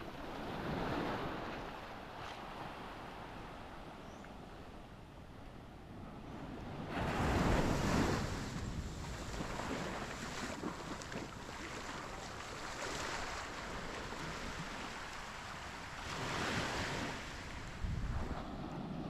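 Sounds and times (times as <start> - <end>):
small waves washing onto beach: 0.0 - 4.6, 6.0 - 19.0
wind buffeting microphone: 6.1 - 11.6, 12.9 - 19.0.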